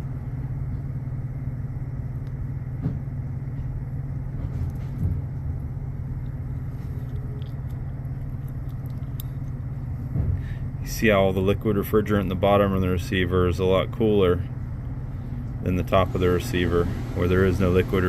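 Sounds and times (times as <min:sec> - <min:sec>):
refrigeration equipment humming: 0:00.0 - 0:18.0.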